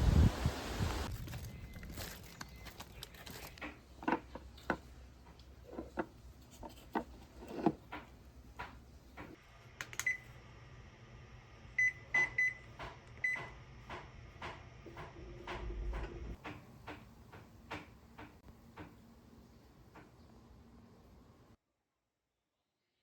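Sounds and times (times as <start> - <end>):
knocks and clicks of handling: 1.9 - 9.4, 12.8 - 19.1
appliance electronic beeps: 11.8 - 13.5.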